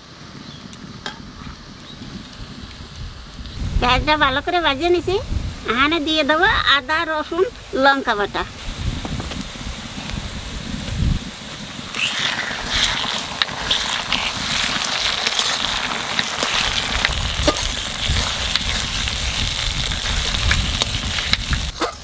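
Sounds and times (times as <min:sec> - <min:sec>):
paste sizzling in hot oil: 0:08.6 - 0:21.7.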